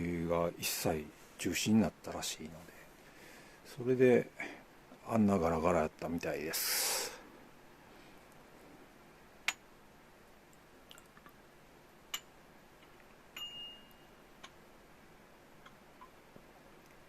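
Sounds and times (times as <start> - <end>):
tableware clinking: 13.4 - 14.1.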